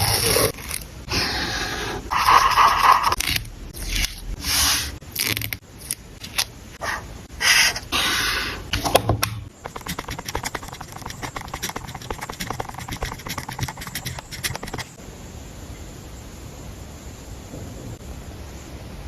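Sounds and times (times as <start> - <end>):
paper rubbing: 2.1 - 5.5, 9.6 - 15.0
faint steady hiss: 13.8 - 19.0.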